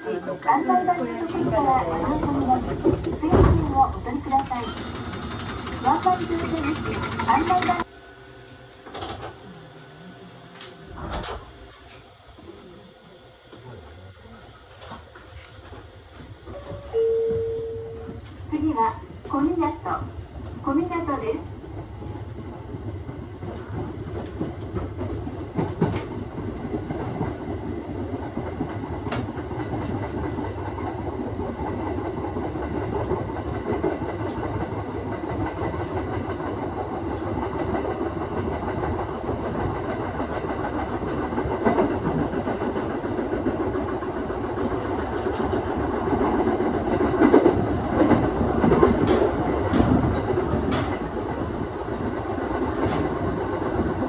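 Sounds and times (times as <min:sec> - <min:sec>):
train wheels rumbling on rail: 0:00.4 - 0:07.9, 0:13.4 - 0:54.0
wheels clicking over rail joints: 0:01.3 - 0:07.9.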